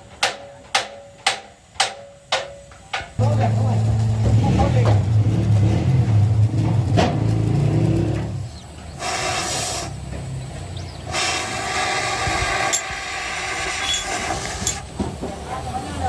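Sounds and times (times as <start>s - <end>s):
hissing noise bursts: 8.9s - 10.2s, 11.0s - 15.0s.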